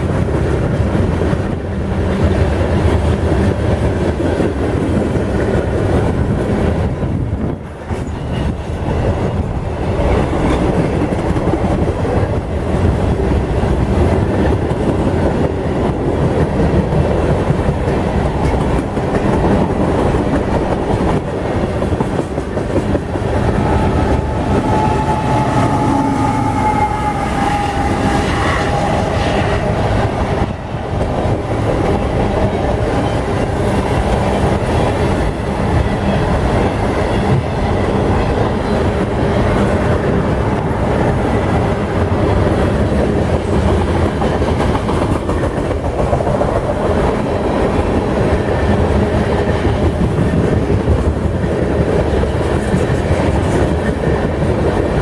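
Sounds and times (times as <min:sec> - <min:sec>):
freight train wheels clattering: 0:00.0 - 0:55.0
high wheel squeal: 0:23.7 - 0:29.6.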